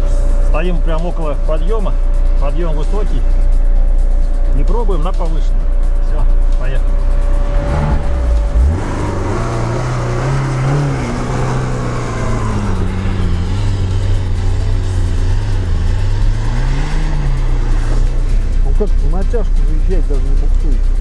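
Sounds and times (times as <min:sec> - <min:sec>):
car engine pulling under load: 0:06.8 - 0:19.5.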